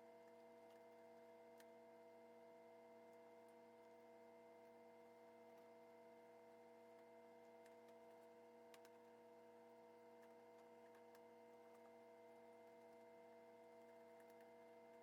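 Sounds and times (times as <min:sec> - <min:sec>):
faint electrical hum: 0:00.0 - 0:15.0
faint ticks: 0:07.0 - 0:09.0.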